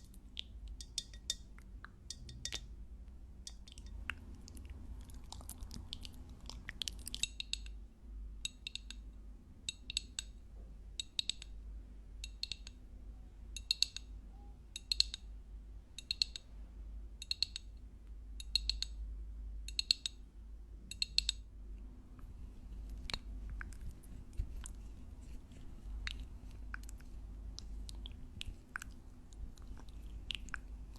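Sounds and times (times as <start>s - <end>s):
soft mouth clicks: 0.0s - 2.7s, 3.5s - 7.8s, 22.2s - 30.9s
crisp crackly chewing: 3.5s - 7.4s, 22.2s - 30.9s.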